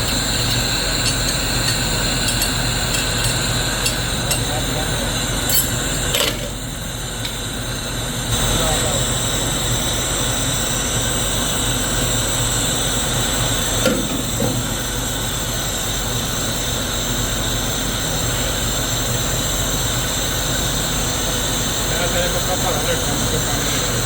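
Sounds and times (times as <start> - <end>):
factory machinery running: 0.0 - 24.0.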